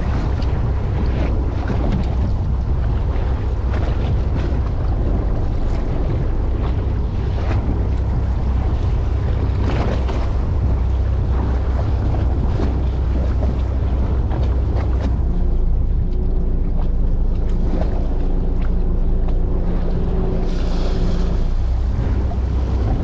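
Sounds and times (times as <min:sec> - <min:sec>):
faint steady hum: 0:00.0 - 0:23.0
sea: 0:00.0 - 0:23.0
wind on microphone: 0:00.0 - 0:23.0.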